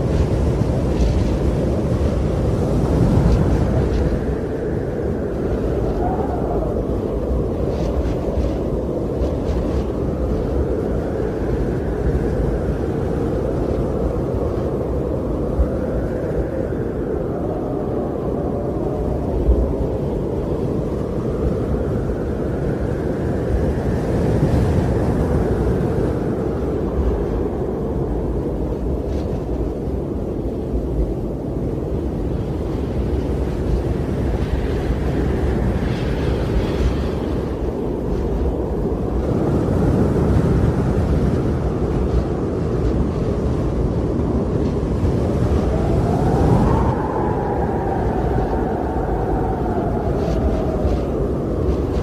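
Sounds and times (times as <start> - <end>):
wind blowing in deep rumble: 0.0 - 52.0.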